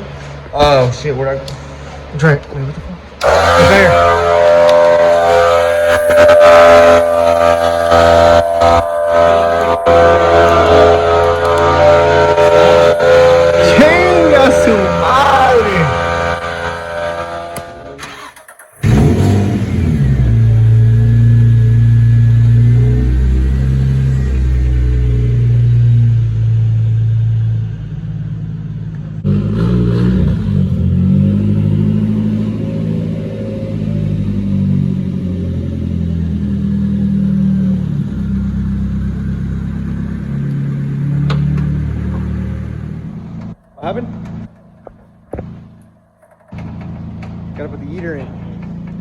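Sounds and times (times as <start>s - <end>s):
car engine revving: 3.0s - 49.0s.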